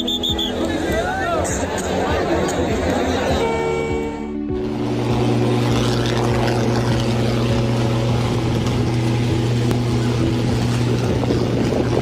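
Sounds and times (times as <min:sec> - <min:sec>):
engine running with low hum: 0:03.4 - 0:12.0.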